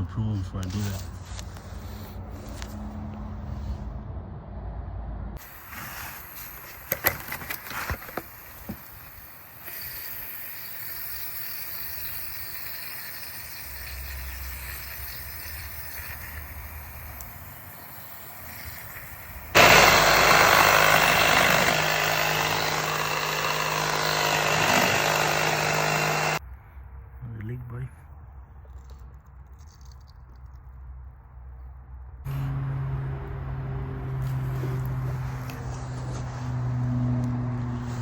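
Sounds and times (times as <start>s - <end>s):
loud machine droning: 19.5s - 26.4s, 32.3s - 34.6s.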